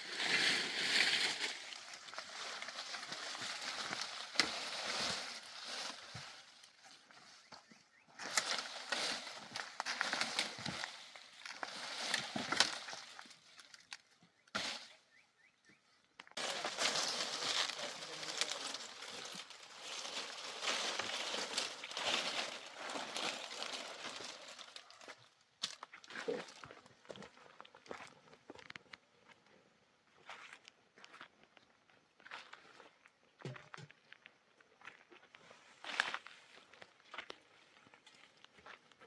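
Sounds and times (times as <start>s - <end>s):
rustling and crunching: 0.0s - 15.2s, 16.2s - 29.0s.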